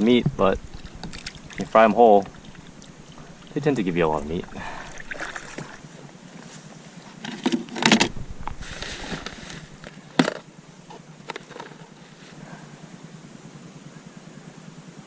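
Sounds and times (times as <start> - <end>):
gear knocking on kayak: 0.2 - 5.8.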